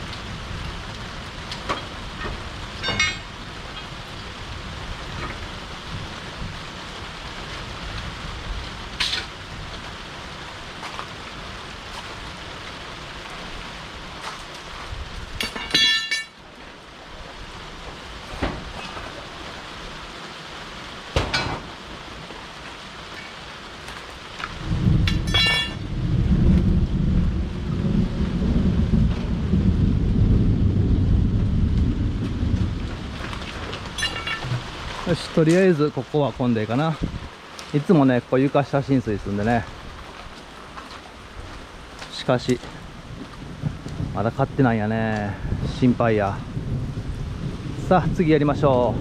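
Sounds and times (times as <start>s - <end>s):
thunder rumbling: 0.0s - 14.2s, 24.3s - 40.2s, 41.1s - 49.0s
steady rain: 0.0s - 49.0s.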